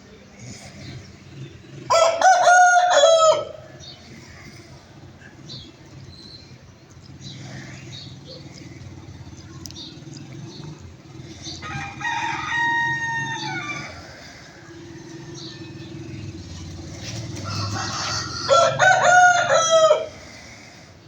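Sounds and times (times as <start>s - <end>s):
rooster crowing: 1.9s - 3.8s, 11.6s - 20.3s.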